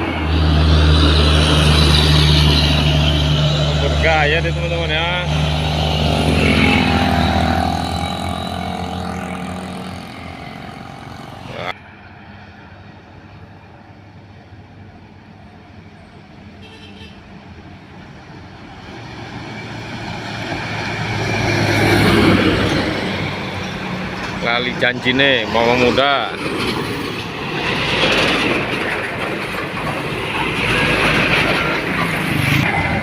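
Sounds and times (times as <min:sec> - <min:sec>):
diesel truck engine climbing: 0:00.0 - 0:15.8, 0:17.4 - 0:33.0.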